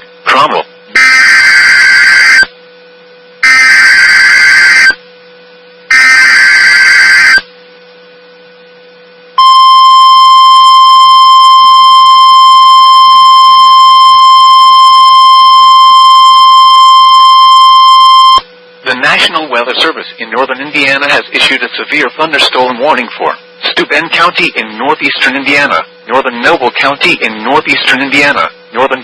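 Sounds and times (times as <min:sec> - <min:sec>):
screeching digital data bursts: 0:01.0 - 0:02.5, 0:03.4 - 0:05.0, 0:05.9 - 0:07.4
steady attention tone: 0:05.8 - 0:29.0.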